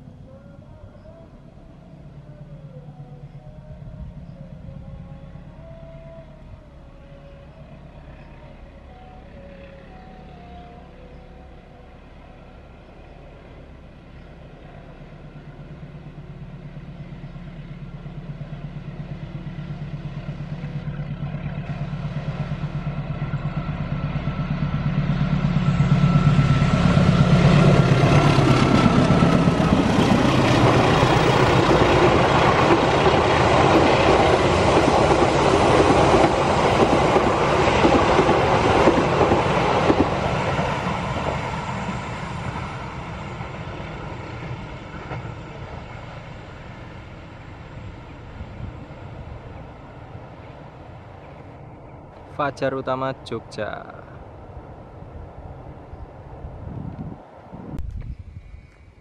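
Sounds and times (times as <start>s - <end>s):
diesel locomotive engine hum: 0.0s - 59.0s
train wheels clickety-clack: 25.3s - 46.1s.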